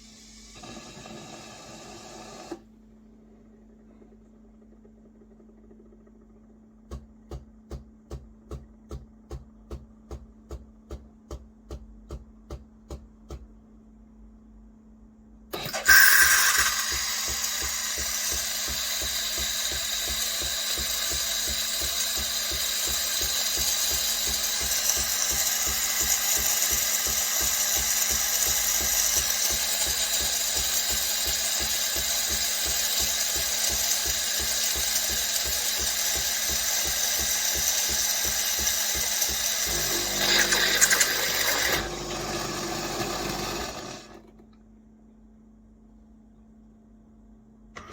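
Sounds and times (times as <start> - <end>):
espresso machine pulsing: 0.0 - 2.6, 15.5 - 44.4.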